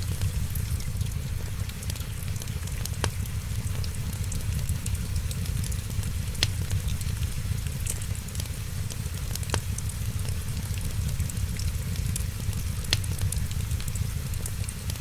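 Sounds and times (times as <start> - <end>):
wood fire crackling: 0.0 - 15.0
loud fire pops: 5.5 - 7.2.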